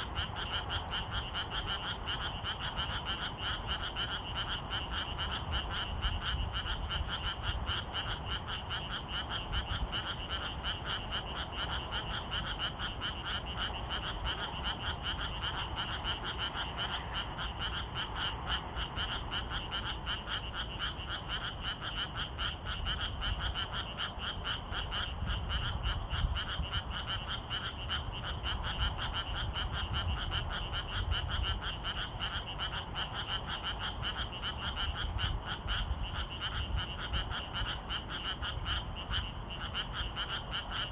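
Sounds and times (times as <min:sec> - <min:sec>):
frogs calling: 0:00.0 - 0:40.9.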